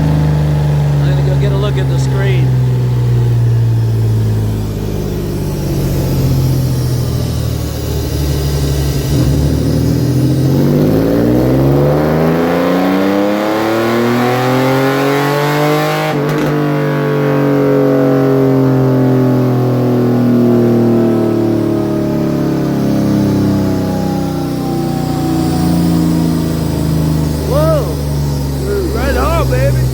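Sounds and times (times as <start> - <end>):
dyno rollers coasting: 0.0 - 12.4, 22.4 - 29.9
engine revving on dynamometer: 0.0 - 29.9.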